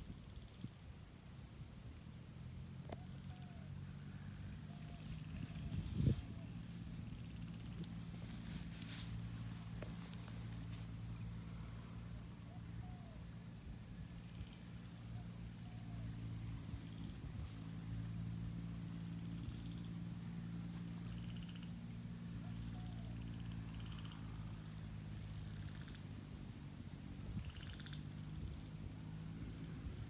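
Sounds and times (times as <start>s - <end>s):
insects trilling: 0.0s - 30.0s
steady low hum: 0.0s - 30.0s
pulsed frog calls: 18.6s - 24.8s, 27.3s - 28.6s.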